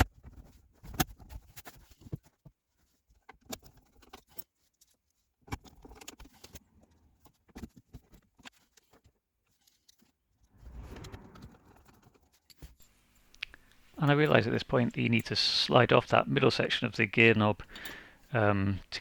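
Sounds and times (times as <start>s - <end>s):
rustling scrape: 10.6s - 12.3s.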